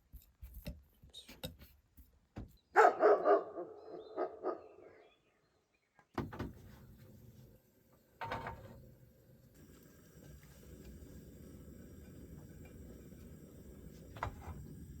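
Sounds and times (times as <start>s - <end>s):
dog barking: 2.8s - 5.0s.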